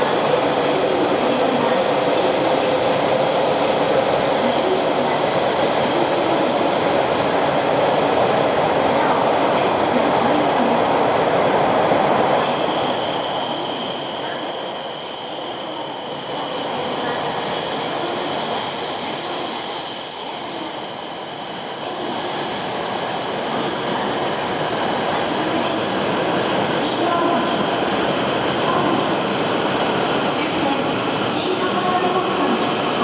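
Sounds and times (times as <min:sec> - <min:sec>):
high-pitched whine: 0:12.2 - 0:30.2.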